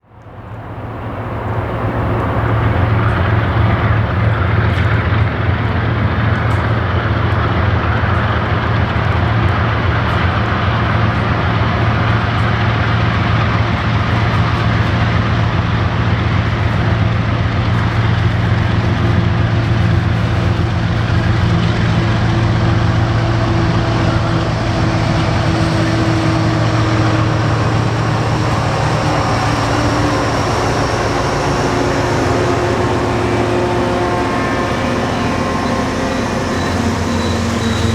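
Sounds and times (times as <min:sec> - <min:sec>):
diesel locomotive engine hum: 0:00.0 - 0:37.9
train rumble: 0:00.0 - 0:37.9
thin high squeal: 0:33.7 - 0:37.9.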